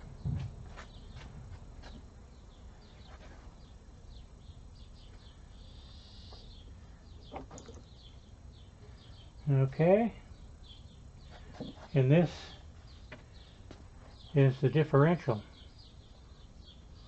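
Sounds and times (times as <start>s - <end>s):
faint bird chirps: 2.4s - 9.5s.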